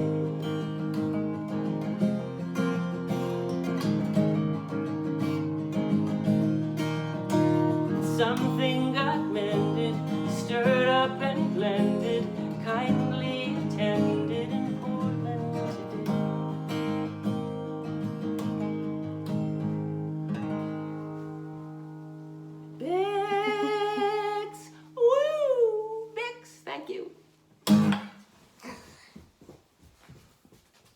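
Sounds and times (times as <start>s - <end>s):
acoustic guitar strumming: 0.0s - 24.9s, 27.4s - 28.4s
person's voice: 23.5s - 27.2s.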